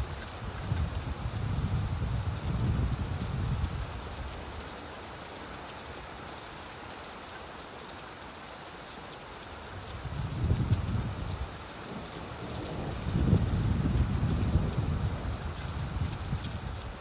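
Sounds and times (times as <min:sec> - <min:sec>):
steady rain falling: 0:00.0 - 0:17.0
distant thunder rumble: 0:11.9 - 0:16.3.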